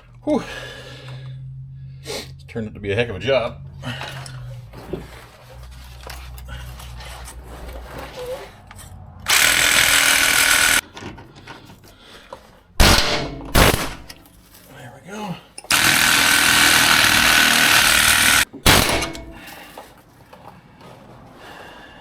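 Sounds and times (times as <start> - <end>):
power tool burst: 9.3 - 10.8, 12.8 - 14.2, 15.7 - 19.5.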